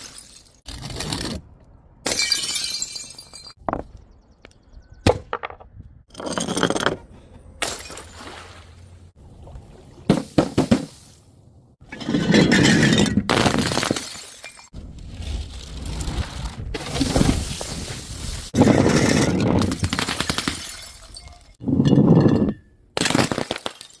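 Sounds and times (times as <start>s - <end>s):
glass bottles clinking: 11.9s - 14.7s, 20.6s - 22.6s
breaking glass crash: 12.4s - 14.7s, 16.8s - 21.6s.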